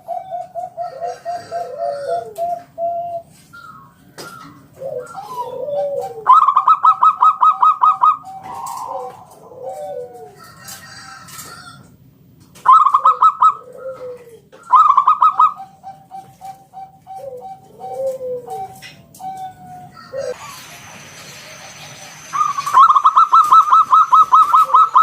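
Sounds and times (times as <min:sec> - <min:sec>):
dove cooing: 0:00.0 - 0:11.8, 0:12.6 - 0:25.0
sharp high pulsed bird notes: 0:20.4 - 0:25.0.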